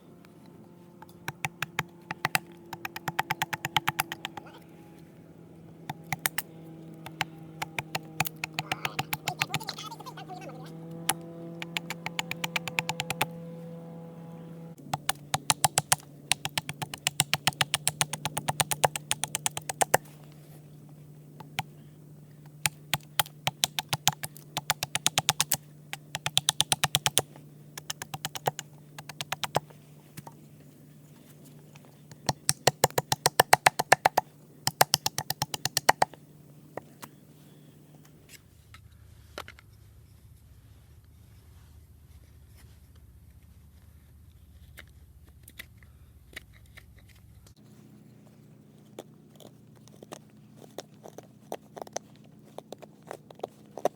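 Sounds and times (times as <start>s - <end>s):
steady low hum: 0.0s - 46.5s, 47.2s - 53.9s
wood carving taps: 1.0s - 4.5s, 5.9s - 6.4s, 7.0s - 9.6s, 11.1s - 13.3s, 14.8s - 20.1s, 21.4s - 21.7s, 22.6s - 29.7s, 32.1s - 36.2s.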